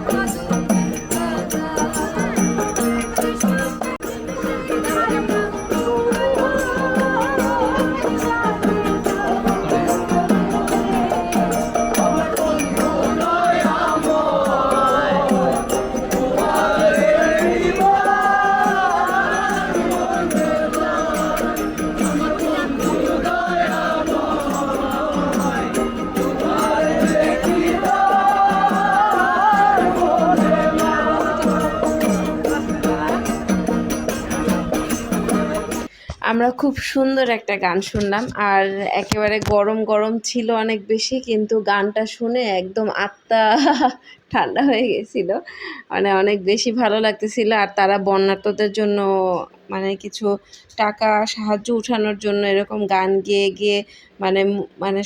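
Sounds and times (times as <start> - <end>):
person singing a melody: 0.0 - 35.9
steady percussion beat: 0.0 - 35.9.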